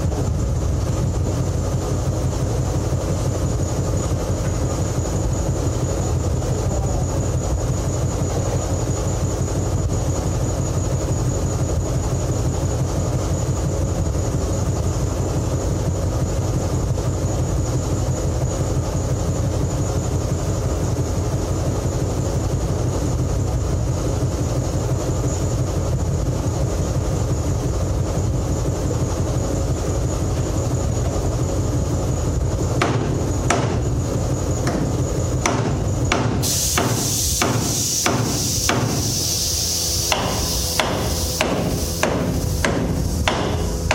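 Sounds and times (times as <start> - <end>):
high whine: 27.3 - 43.9
machinery rumbling: 27.3 - 43.9
metal hammer strikes: 32.8 - 33.8, 34.6 - 39.0, 40.1 - 43.9.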